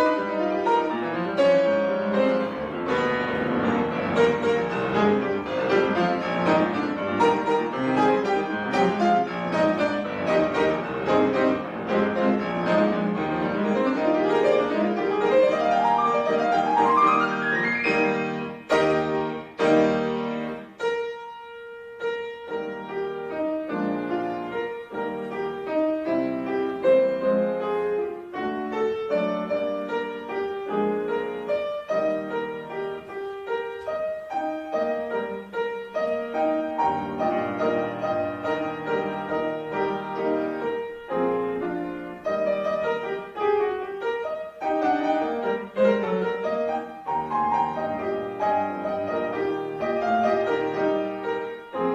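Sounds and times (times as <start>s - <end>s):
piano playing: 0.0s - 51.9s.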